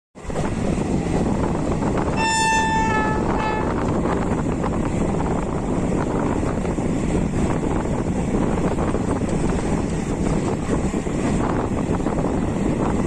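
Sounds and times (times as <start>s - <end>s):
rushing wind: 0.2s - 13.0s
train wheels rumbling on track: 0.2s - 13.0s
train horn: 2.1s - 4.0s.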